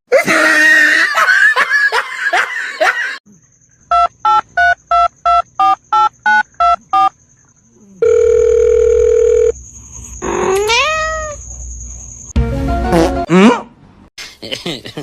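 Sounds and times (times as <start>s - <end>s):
steady phone tone: 8.0s - 9.6s.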